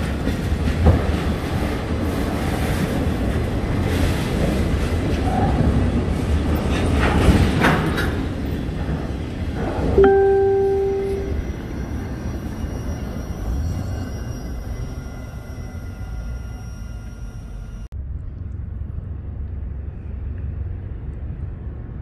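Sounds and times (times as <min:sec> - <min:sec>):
wheels clacking over rail joints: 0:00.0 - 0:10.0
metallic ringing tone: 0:10.0 - 0:17.8.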